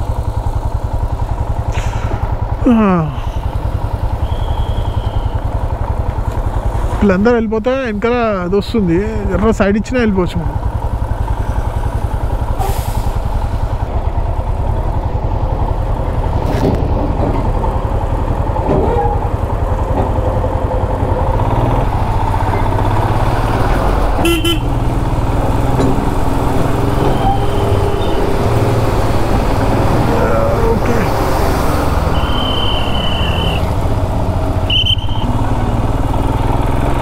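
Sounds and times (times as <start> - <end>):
motorcycle engine running: 0.0 - 37.0
vehicle horn toot: 24.2 - 24.7, 32.1 - 33.6, 34.7 - 35.3.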